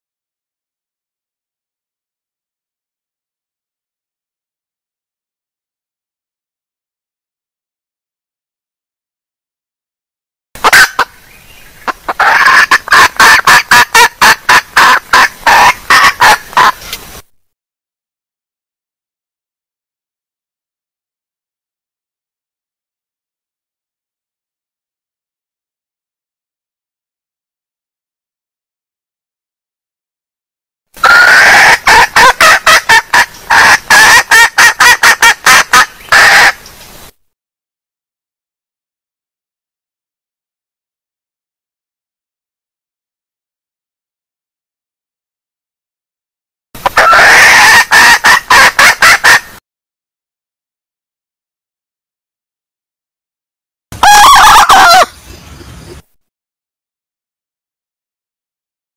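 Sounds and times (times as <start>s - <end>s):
junglefowl clucking: 10.6s - 11.2s, 11.8s - 17.0s, 31.0s - 36.6s, 46.8s - 49.6s, 54.0s - 55.1s.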